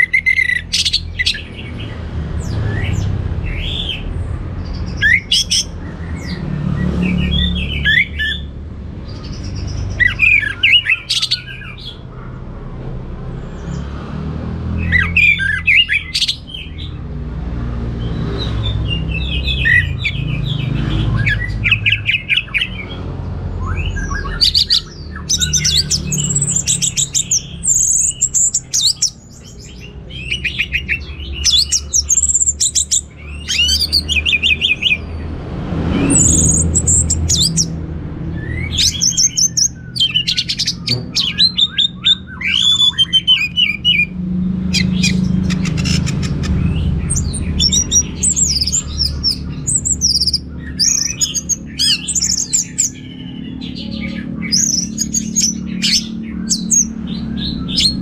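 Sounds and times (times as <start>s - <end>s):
rush of noise: 32.6s - 41.6s.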